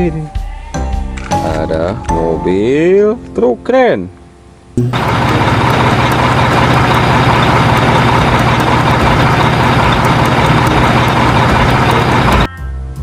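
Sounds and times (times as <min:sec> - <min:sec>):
truck engine humming: 0:04.8 - 0:12.5.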